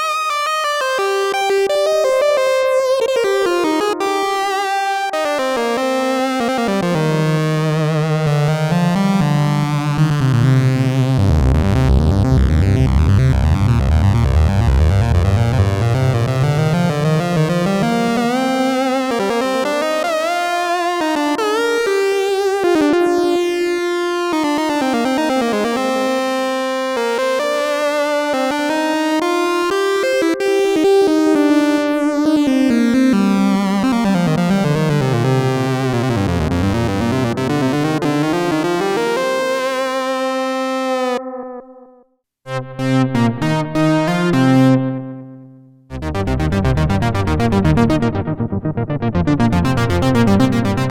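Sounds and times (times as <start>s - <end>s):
synthesizer lead melody: 38.2s - 50.9s
synthesizer short notes: 40.5s - 45.2s.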